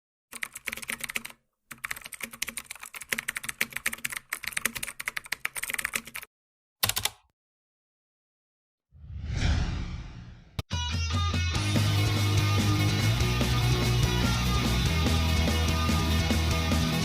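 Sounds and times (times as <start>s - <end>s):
typing on computer keyboard: 0.3s - 7.3s.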